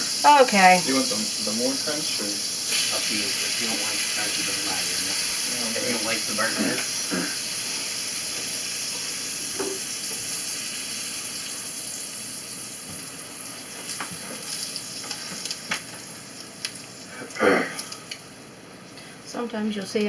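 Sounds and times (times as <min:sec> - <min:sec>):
tortilla sizzling in frying pan: 0:00.0 - 0:19.2
small pops and crackles: 0:13.7 - 0:18.3.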